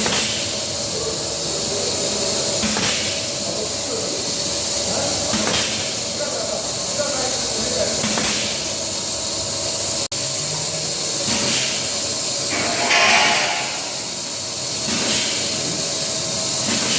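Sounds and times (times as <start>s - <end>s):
machine hissing: 11.2s - 16.9s
high-pitched squeal: 12.5s - 14.5s.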